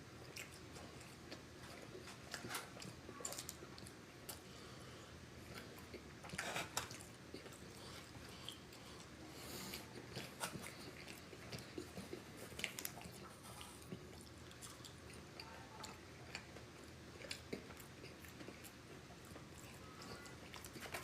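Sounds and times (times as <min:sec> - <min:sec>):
person chewing chicken wings: 0:05.4 - 0:21.0.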